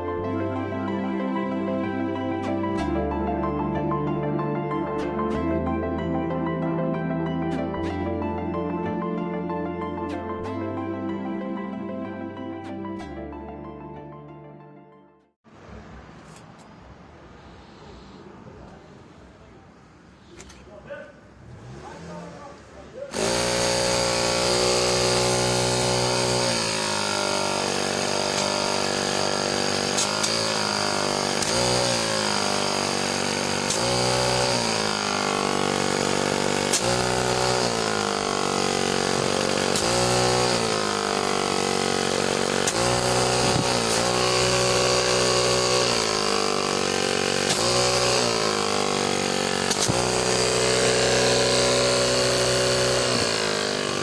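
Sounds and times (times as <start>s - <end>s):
air compressor motor humming: 23.1s - 54.0s.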